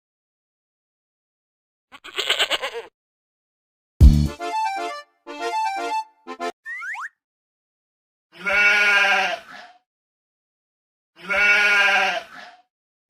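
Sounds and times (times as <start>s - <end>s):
cartoon sheep bleating: 1.9s - 2.9s, 8.3s - 9.8s, 11.2s - 12.6s.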